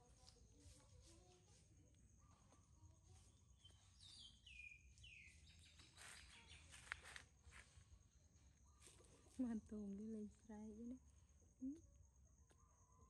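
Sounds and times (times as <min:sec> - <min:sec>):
faint falling bird chirps: 0:03.6 - 0:07.2.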